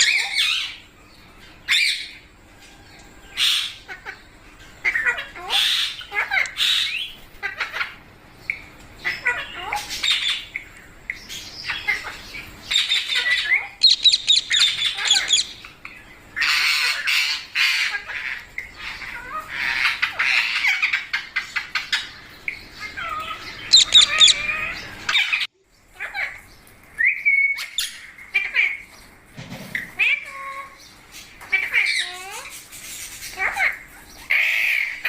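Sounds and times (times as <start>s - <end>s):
parrot squawking: 0.0s - 0.8s, 12.7s - 15.7s, 22.8s - 25.5s
whistled call: 13.8s - 15.5s.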